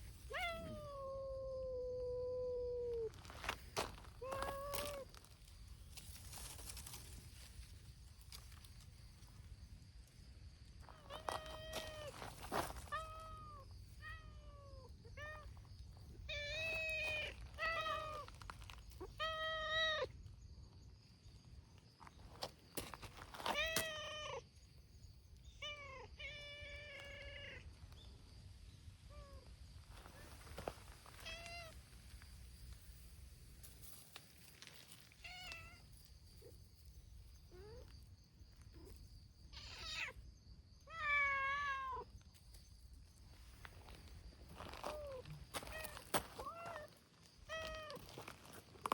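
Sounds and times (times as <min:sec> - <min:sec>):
cats meowing: 0:00.3 - 0:03.1, 0:04.2 - 0:05.1, 0:39.6 - 0:40.2, 0:40.9 - 0:42.1.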